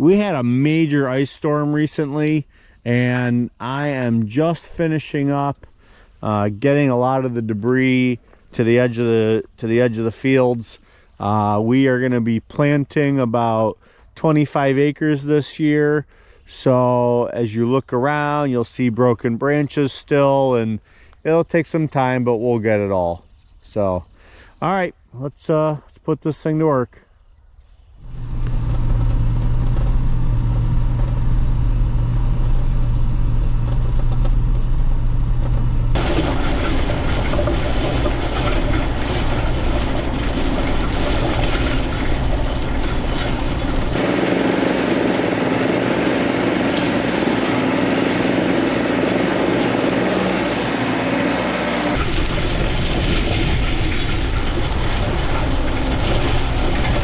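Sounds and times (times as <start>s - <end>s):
diesel engine running: 28.0s - 57.0s
metal harrow rattling and scraping: 28.0s - 57.0s.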